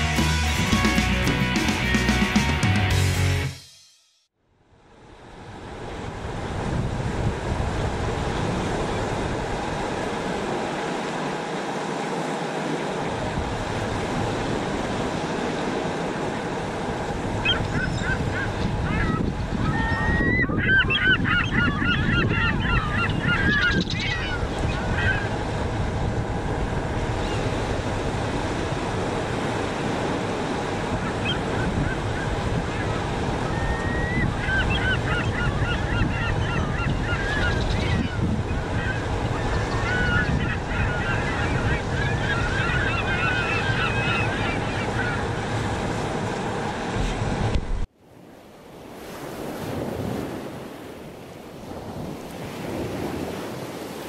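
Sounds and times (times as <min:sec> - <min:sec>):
steady wind: 0:04.5 - 0:54.0
geese honking: 0:17.4 - 0:25.3, 0:30.9 - 0:45.6.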